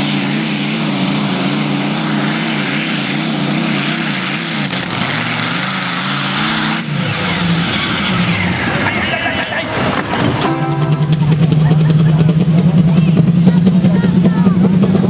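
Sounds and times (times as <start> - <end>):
tractor engine running hard: 0.0 - 15.0.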